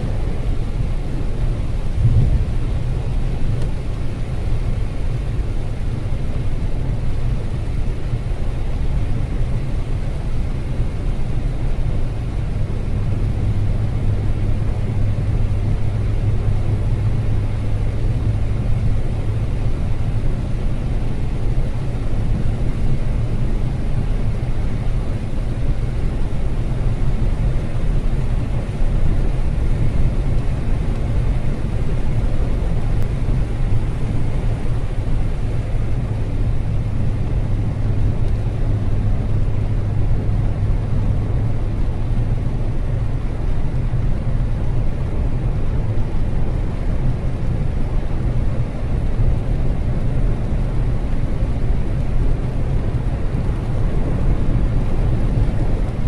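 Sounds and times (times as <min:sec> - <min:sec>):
car driving on wet road: 0:00.0 - 0:56.0.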